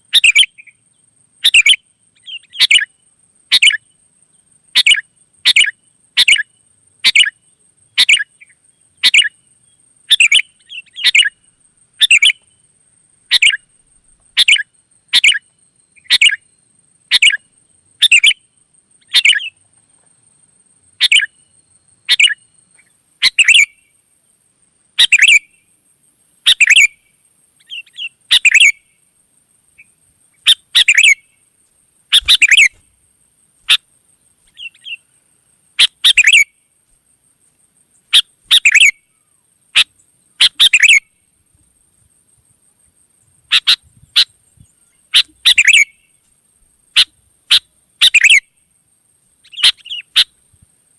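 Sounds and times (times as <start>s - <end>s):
bulbul calling: 0.0s - 0.8s, 1.4s - 2.9s, 3.5s - 3.8s, 4.8s - 7.4s, 8.0s - 9.4s, 10.0s - 12.5s, 13.3s - 16.4s, 17.1s - 18.4s, 19.0s - 19.6s, 21.0s - 21.4s, 22.0s - 23.8s, 25.0s - 25.5s, 26.5s - 27.0s, 27.6s - 28.9s, 29.8s - 31.4s, 32.1s - 33.0s, 33.6s - 33.8s, 34.4s - 35.0s, 35.8s - 36.5s, 38.0s - 41.1s, 43.5s - 46.1s, 46.9s - 48.5s, 49.4s - 50.4s.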